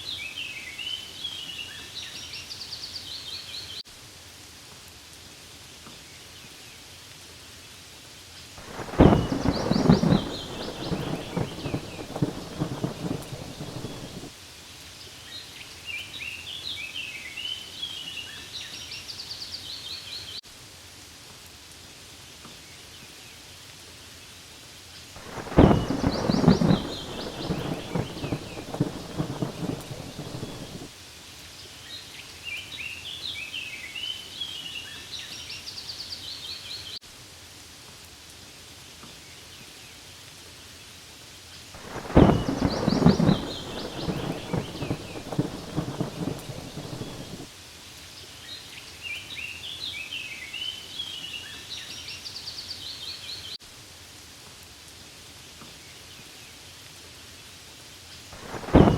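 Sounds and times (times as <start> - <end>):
steady rain: 0.0 - 58.9
thunder rumbling: 8.6 - 14.3, 25.2 - 30.9, 41.8 - 47.5, 58.4 - 58.9.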